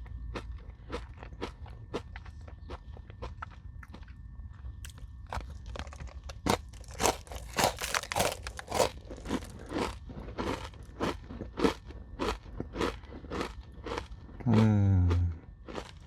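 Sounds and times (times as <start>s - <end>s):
granola bar crunching: 4.8s - 14.1s.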